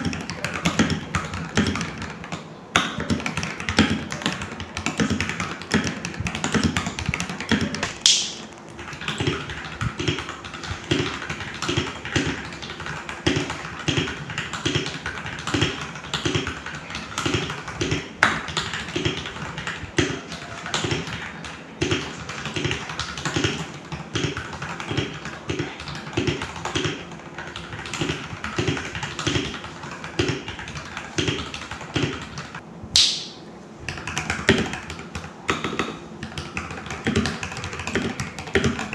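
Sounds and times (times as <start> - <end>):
mechanical keyboard typing: 0.0 - 33.3, 33.9 - 38.9.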